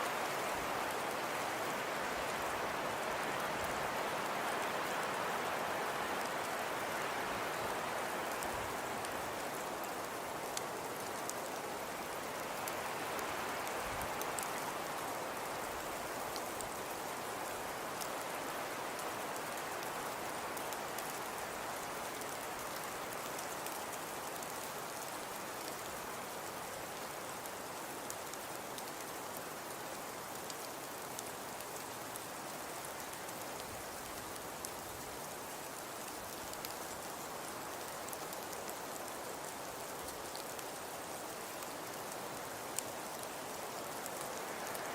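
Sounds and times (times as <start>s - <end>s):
fireplace fire crackling: 0.0s - 44.9s.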